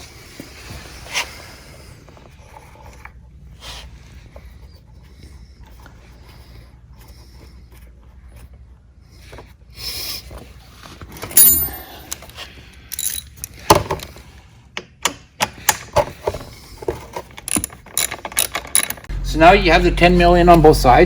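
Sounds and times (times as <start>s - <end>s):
hand tools clicking and knocking: 11.2s - 14.2s, 15.0s - 19.1s.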